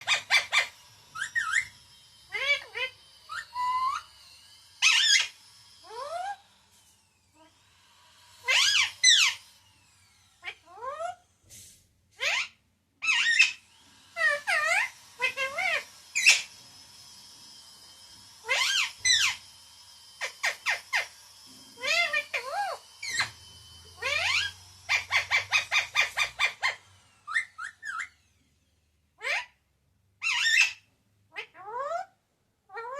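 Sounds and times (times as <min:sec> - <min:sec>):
parrot whistled calls: 0:00.0 - 0:06.5, 0:08.4 - 0:09.5, 0:10.4 - 0:11.2, 0:12.2 - 0:13.6, 0:14.2 - 0:16.6, 0:18.4 - 0:19.5, 0:20.2 - 0:21.2, 0:21.8 - 0:28.4, 0:29.2 - 0:29.6, 0:30.2 - 0:32.1.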